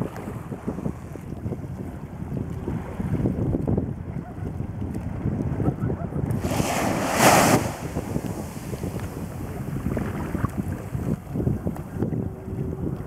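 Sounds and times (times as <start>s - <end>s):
wind buffeting microphone: 0.0s - 13.0s
water noise: 6.2s - 13.0s
rushing hiss: 6.4s - 9.4s.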